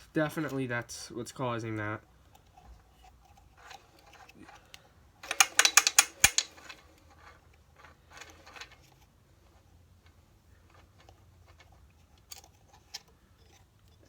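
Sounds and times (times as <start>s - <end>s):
rapid metallic clicking: 5.2s - 6.6s.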